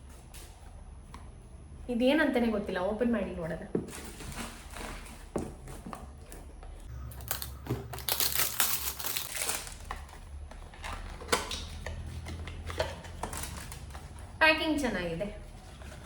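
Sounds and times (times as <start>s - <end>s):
packaging crinkling and rustling: 7.1s - 14.2s.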